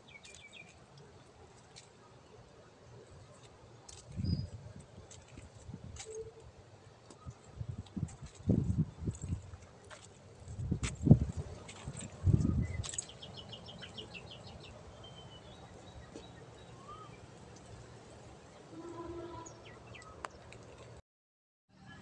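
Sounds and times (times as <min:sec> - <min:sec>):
small birds chirping: 0:00.0 - 0:00.8, 0:11.3 - 0:17.8.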